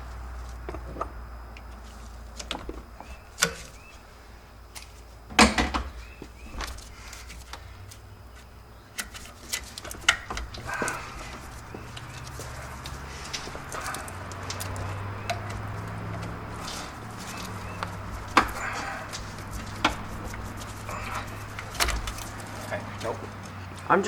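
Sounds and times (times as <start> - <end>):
low steady hum: 0.0 - 24.0
hand tools and metal parts clicking: 7.0 - 23.9.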